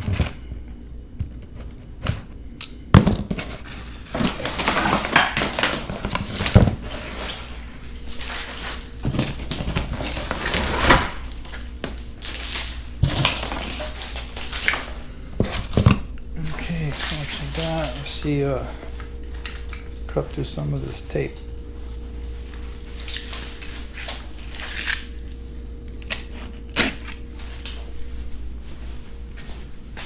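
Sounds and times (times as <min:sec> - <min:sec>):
cardboard scraping and rustling: 0:03.1 - 0:11.6.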